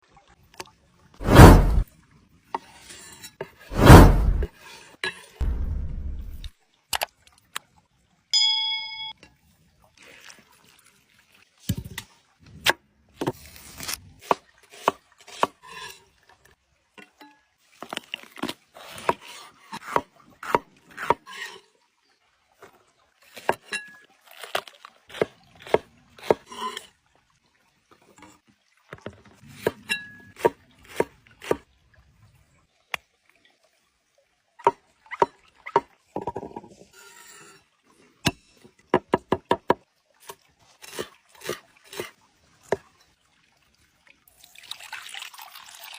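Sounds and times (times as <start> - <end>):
knife chopping on wooden board: 1.2 - 1.8, 3.7 - 4.5.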